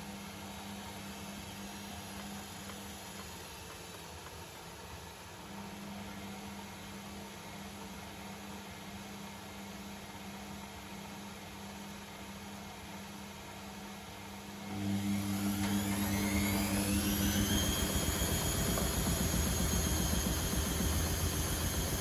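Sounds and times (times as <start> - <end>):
washing machine hum: 0.0 - 22.0
washing machine drum spinning up: 14.6 - 22.0.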